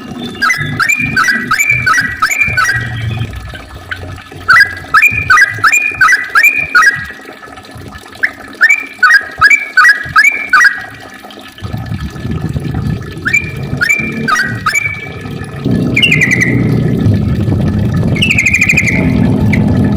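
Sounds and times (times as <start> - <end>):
bird singing rising notes: 0.0 - 7.1, 13.2 - 17.0, 18.1 - 19.9.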